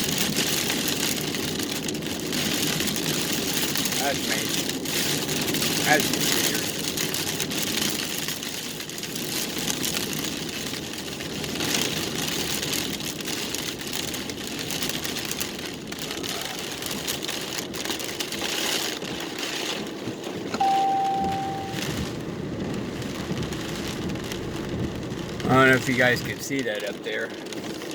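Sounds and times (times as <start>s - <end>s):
rain pattering on a vehicle: 0.0s - 27.9s
short electronic beep: 20.6s - 22.0s.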